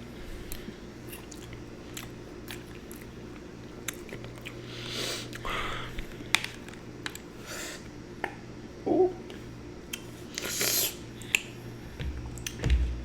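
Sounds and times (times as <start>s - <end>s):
chewing cereal: 0.5s - 5.5s.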